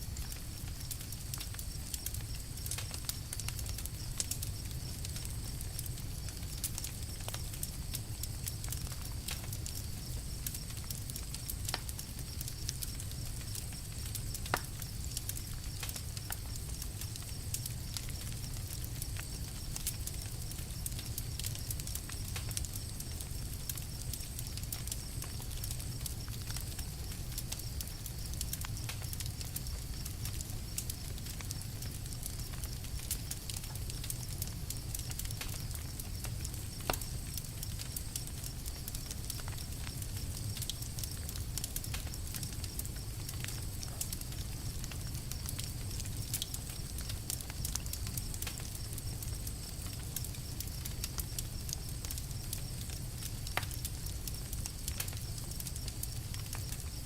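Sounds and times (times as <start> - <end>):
campfire crackling: 0.0 - 57.0.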